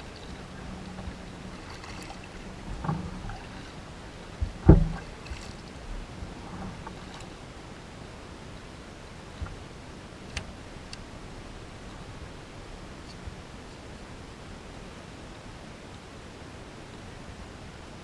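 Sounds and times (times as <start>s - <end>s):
water wash: 0.0s - 12.7s
wind noise: 0.0s - 14.9s
knocks on kayak: 4.4s - 5.6s.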